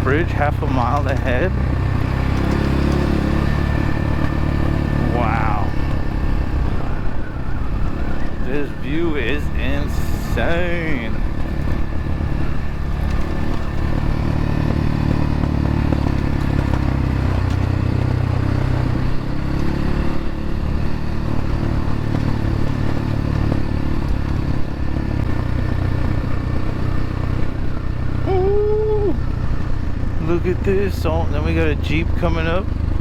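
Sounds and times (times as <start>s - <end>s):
dirt bike engine running: 0.0s - 33.0s.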